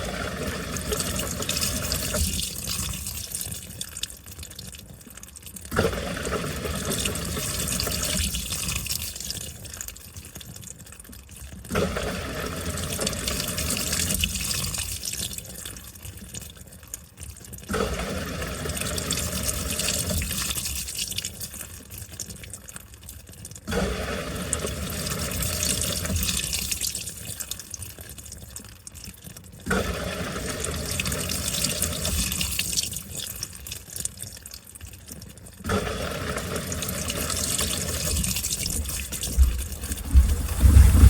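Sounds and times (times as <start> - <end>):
washing machine sloshing: 35.7 - 41.0.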